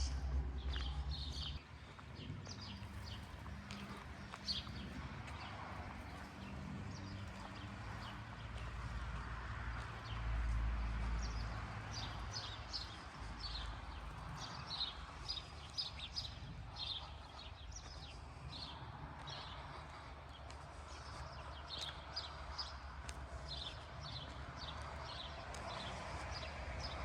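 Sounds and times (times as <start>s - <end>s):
low rumble: 0.0s - 2.9s
small birds chirping: 0.0s - 27.0s.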